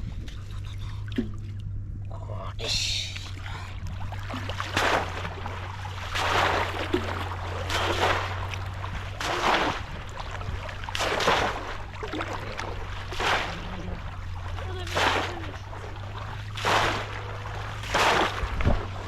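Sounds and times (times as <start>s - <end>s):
trap plunged into splashing water: 4.0s - 19.0s.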